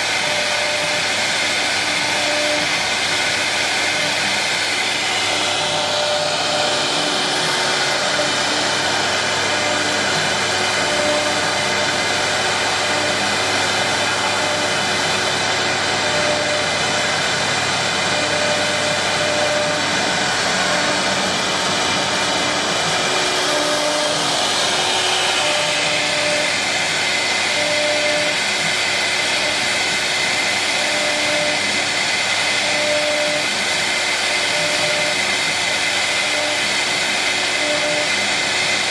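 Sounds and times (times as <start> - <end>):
router machine whirring: 0.0 - 38.9
short humming tones: 0.2 - 26.7.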